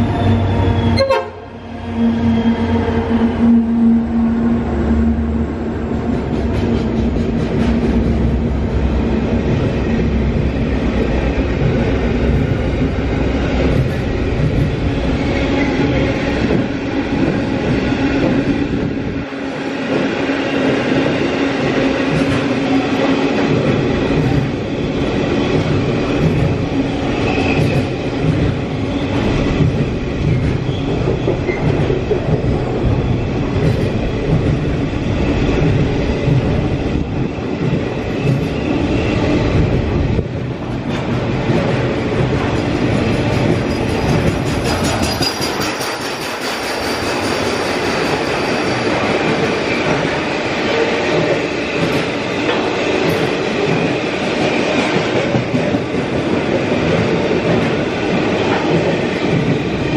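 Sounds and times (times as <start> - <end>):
freight train wagons rumbling: 0.0 - 59.9
wheels clattering over rails: 40.8 - 50.1.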